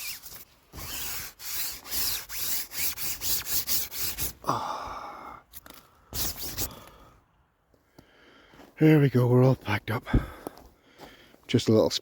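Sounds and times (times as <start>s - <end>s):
camping gear rustling and scraping: 0.0s - 4.5s, 5.5s - 8.8s.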